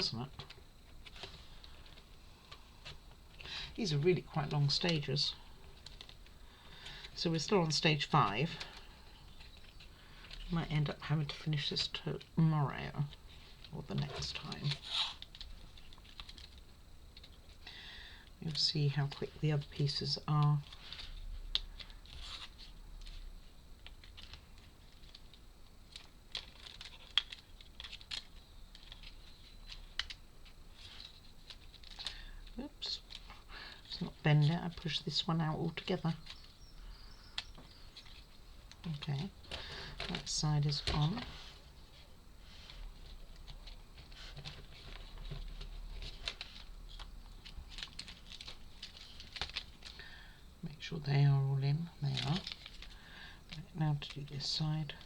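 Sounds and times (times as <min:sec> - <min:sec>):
wooden puzzle pieces clicking: 0:23.8 - 0:30.2.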